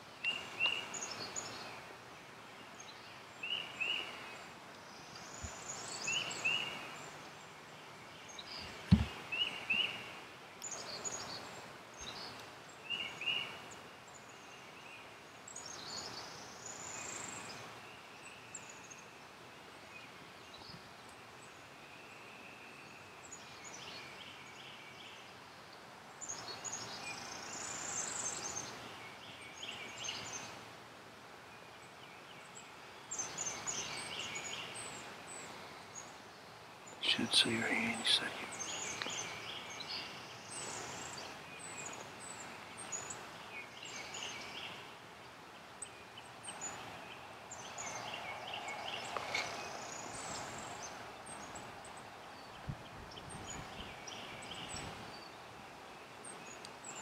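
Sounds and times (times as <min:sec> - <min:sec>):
birds chirping: 0:02.7 - 0:19.1, 0:31.8 - 0:57.0
quick sweeping bird phrases: 0:37.0 - 0:38.6.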